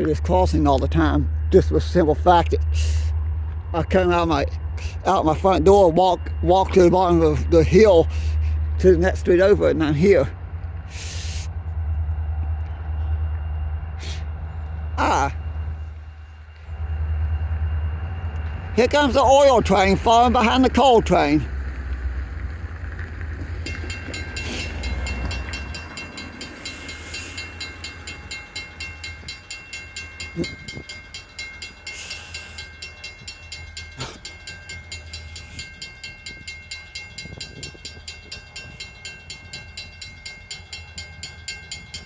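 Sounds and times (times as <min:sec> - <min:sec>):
train rumble: 0:00.0 - 0:42.0
wheels clicking over rails: 0:18.2 - 0:42.0.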